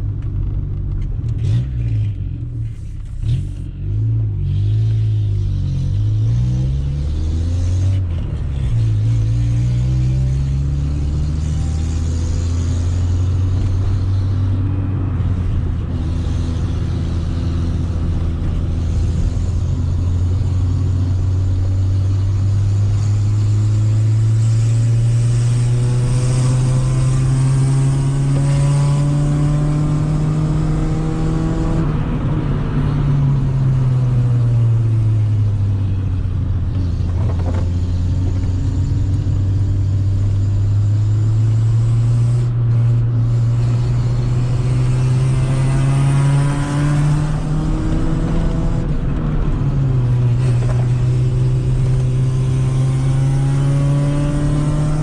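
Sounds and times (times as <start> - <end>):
car engine revving loud exhaust: 0.0 - 55.0.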